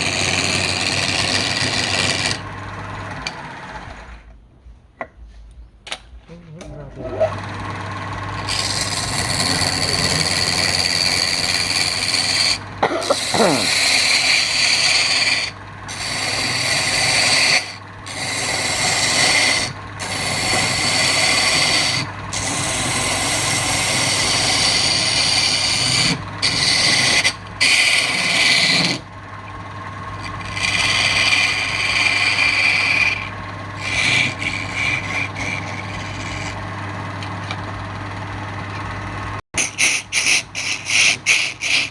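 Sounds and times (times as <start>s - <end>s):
tool rasping on spinning wood: 0.0s - 4.1s, 8.2s - 38.4s, 39.6s - 41.9s
lathe humming: 0.0s - 4.3s, 7.0s - 41.9s.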